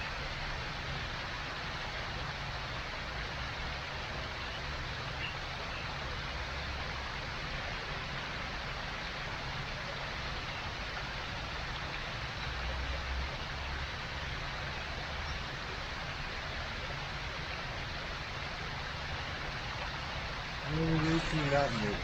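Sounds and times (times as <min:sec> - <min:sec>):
steady rushing noise: 0:20.4 - 0:22.0.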